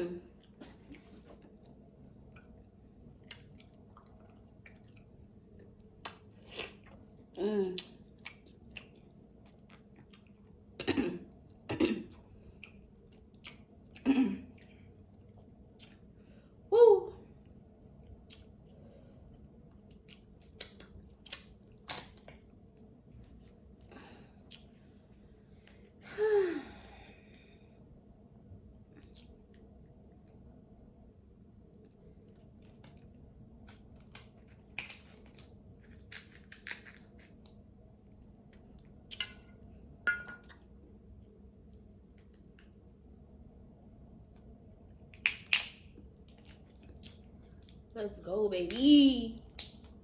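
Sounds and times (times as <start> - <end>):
soft chewing: 0.3 - 16.6, 17.3 - 26.0, 28.6 - 30.6, 44.2 - 48.0
crab shell cracking: 34.0 - 37.5, 45.1 - 47.1.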